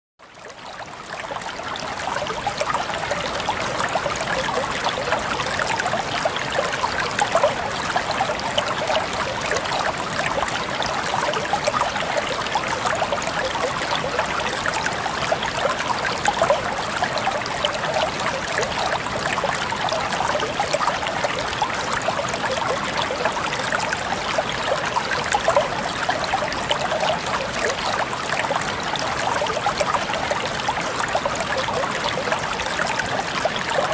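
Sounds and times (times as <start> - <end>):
stream water babbling and splashing: 0.2 - 33.9.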